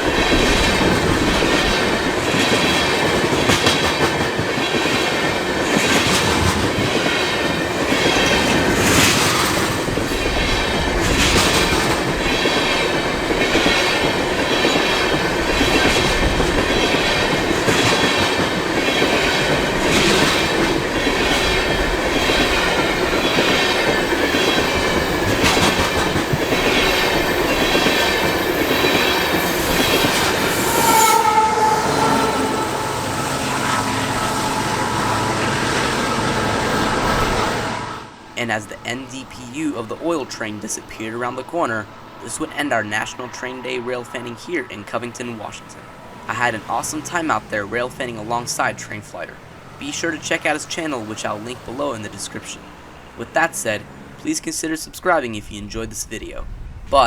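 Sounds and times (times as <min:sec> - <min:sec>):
clacks over rail joints: 0:00.0 - 0:32.8
train wheels rumbling: 0:00.0 - 0:57.0
high ringing wheel squeal: 0:29.6 - 0:38.0.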